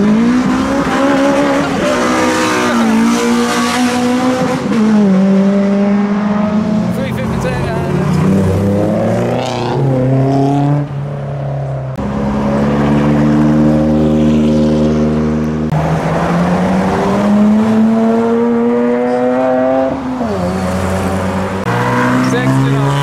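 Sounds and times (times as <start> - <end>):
car engines accelerating: 0.0 - 23.0.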